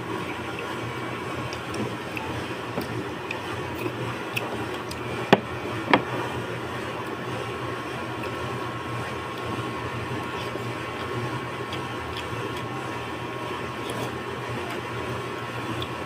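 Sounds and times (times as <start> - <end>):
steady background hum: 0.0 - 16.0
eating sounds: 0.3 - 5.1, 10.2 - 12.8.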